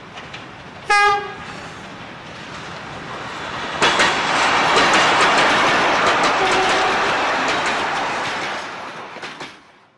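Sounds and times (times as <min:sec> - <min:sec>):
wheels clicking over rail joints: 0:00.0 - 0:00.9, 0:03.6 - 0:09.8
railcar rumble: 0:00.0 - 0:09.9
train horn toot: 0:00.9 - 0:01.5, 0:06.4 - 0:07.0.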